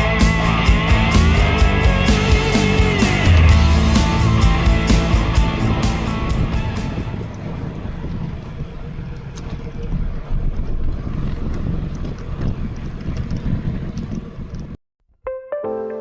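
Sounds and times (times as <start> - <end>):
music with plucked notes: 0.0 - 7.0, 15.3 - 16.0
road noise rumble: 0.0 - 14.7
wind buffeting microphone: 5.3 - 14.8.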